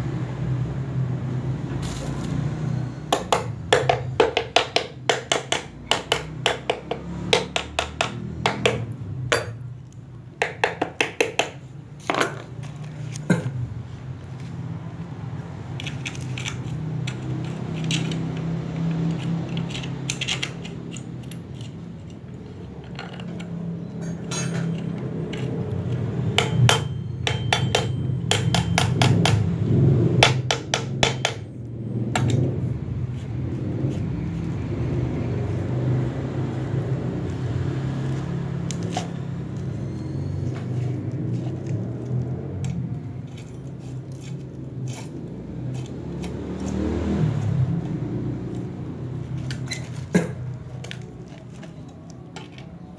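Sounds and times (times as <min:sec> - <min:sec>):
hand tools knocking on metal: 0:03.1 - 0:09.6, 0:10.4 - 0:12.5, 0:24.0 - 0:29.5, 0:30.2 - 0:31.5.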